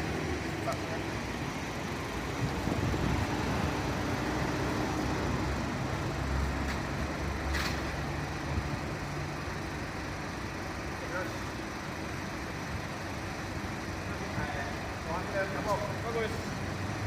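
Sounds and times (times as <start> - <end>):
fire truck engine rumbling: 0.0 - 17.0.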